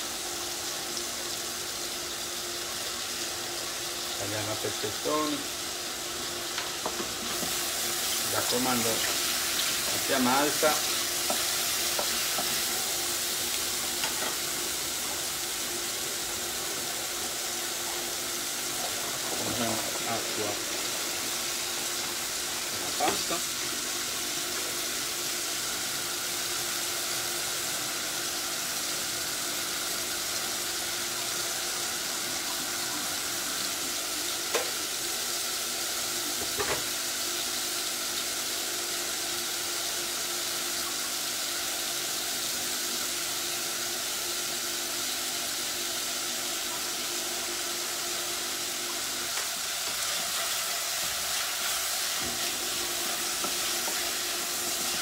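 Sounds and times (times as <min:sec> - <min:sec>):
food sizzling in a pan: 0:00.0 - 0:55.0
spatula stirring mushrooms: 0:06.5 - 0:15.6, 0:49.4 - 0:55.0.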